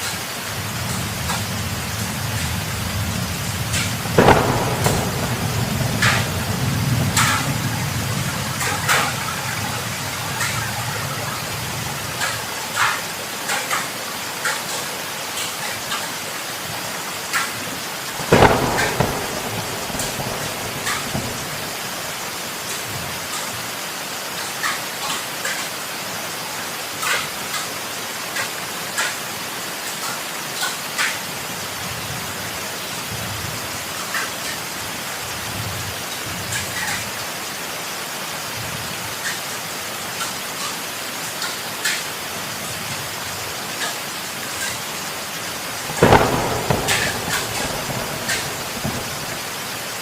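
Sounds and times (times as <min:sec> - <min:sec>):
heavy rain falling: 0:00.0 - 0:50.0
thunder clap: 0:00.7 - 0:12.3, 0:18.1 - 0:23.1, 0:45.8 - 0:50.0
raindrops ticking: 0:02.3 - 0:16.2, 0:17.3 - 0:23.5, 0:45.7 - 0:50.0.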